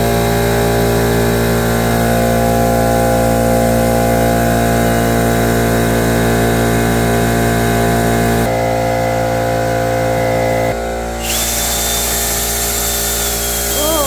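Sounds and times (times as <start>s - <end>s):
motor humming: 11.0s - 14.0s.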